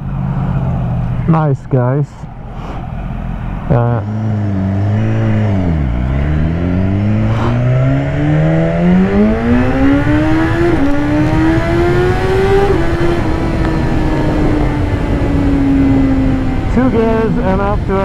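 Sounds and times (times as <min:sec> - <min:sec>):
gear upshifts: 0:02.4 - 0:15.4
motorcycle engine accelerating: 0:02.8 - 0:18.0
wind rush: 0:04.9 - 0:18.0.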